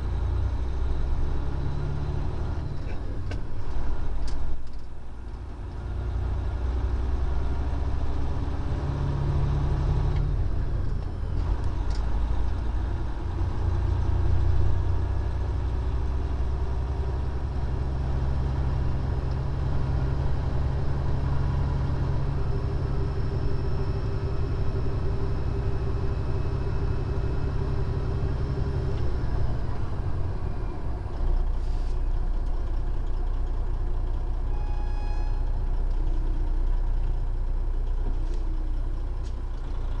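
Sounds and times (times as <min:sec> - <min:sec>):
diesel truck engine droning: 0:00.0 - 0:40.0
road noise: 0:00.0 - 0:40.0.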